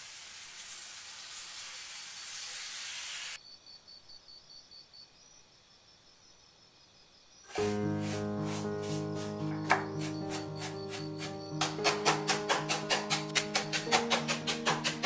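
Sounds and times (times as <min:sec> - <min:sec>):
food sizzling in a skillet: 0:00.0 - 0:03.4
music: 0:07.5 - 0:15.0.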